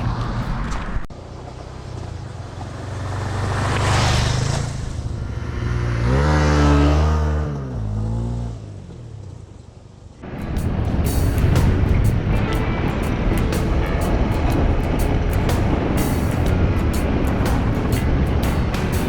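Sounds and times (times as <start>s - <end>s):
motorcycle engine accelerating: 10.2s - 19.0s.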